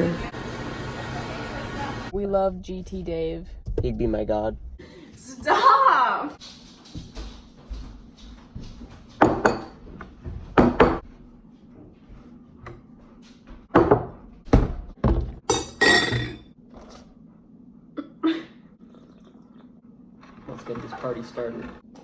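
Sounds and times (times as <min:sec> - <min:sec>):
objects thunking and knocking: 0:06.5 - 0:11.1, 0:13.6 - 0:16.4.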